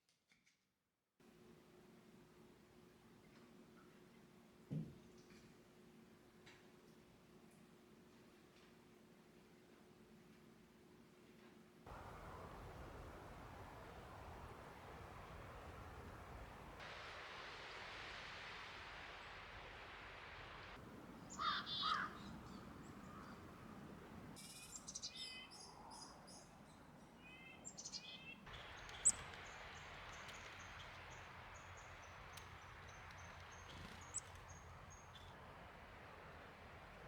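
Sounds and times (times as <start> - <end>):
birds calling: 11.9 - 16.8, 20.8 - 25.7, 27.2 - 35.3
steady hiss: 11.9 - 24.4, 28.5 - 37.0.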